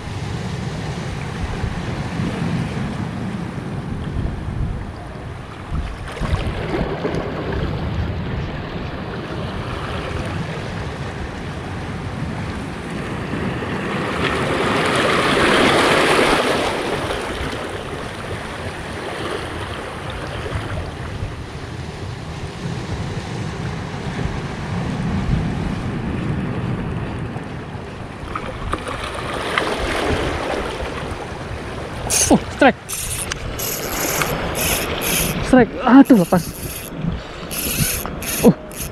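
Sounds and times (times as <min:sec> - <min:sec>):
wind rumbling on microphone: 0:00.0 - 0:14.8.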